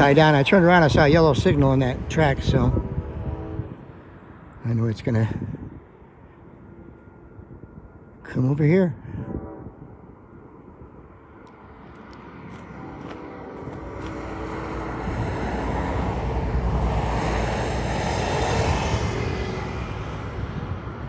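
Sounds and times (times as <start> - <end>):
locomotive engine drone: 0.0 - 21.0.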